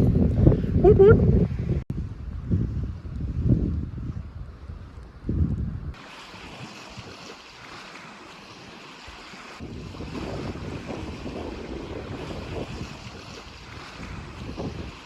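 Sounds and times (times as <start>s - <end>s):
wind buffeting microphone: 0.0s - 7.2s, 9.5s - 15.0s
wind blowing over water: 0.0s - 15.0s
waves washing on shore: 5.9s - 15.0s.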